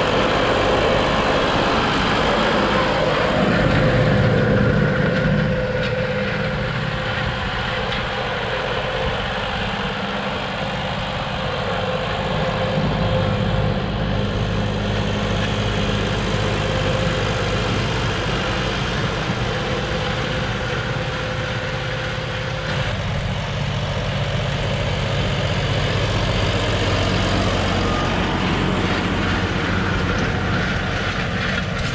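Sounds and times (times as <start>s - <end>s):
tractor diesel engine running: 0.0s - 31.9s.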